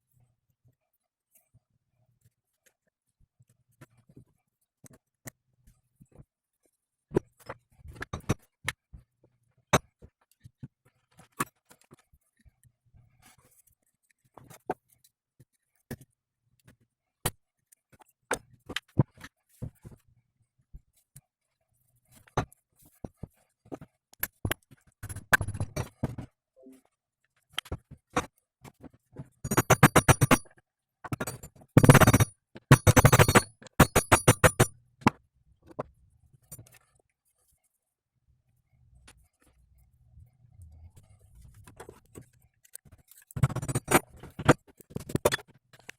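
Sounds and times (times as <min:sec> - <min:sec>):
hand tool clicks and knocks: 0:29.4 - 0:35.9.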